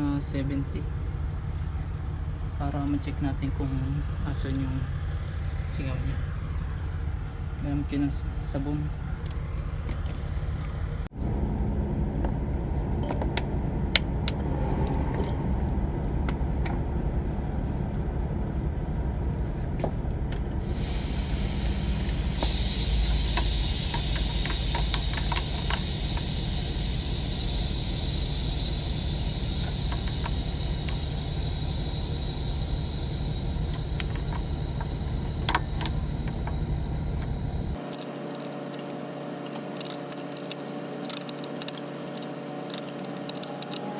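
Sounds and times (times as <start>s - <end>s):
low rumble: 11.1s - 37.8s
light handling clicks: 12.1s - 43.8s
hiss of pressurized gas: 13.6s - 37.8s.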